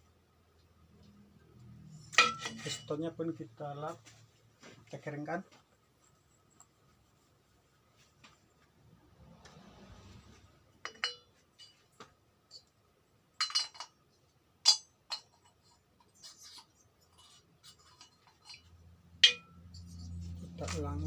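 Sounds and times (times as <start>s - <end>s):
low steady hum: 0.0s - 21.0s
metal parts rubbing: 2.0s - 3.0s, 14.7s - 21.0s
metallic clinks and taps: 10.8s - 12.8s, 14.6s - 16.6s, 17.2s - 20.3s.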